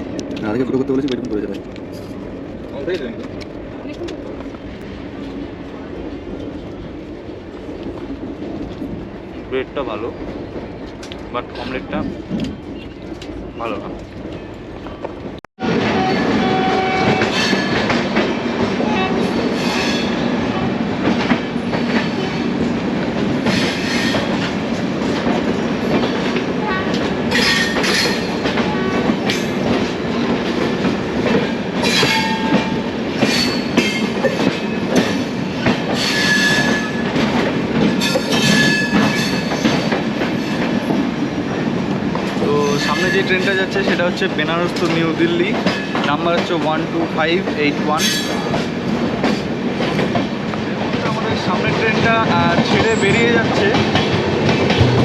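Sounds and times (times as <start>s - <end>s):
train rumbling with wheel clatter: 0.0s - 55.0s
metallic wheel screeches: 36.0s - 37.0s.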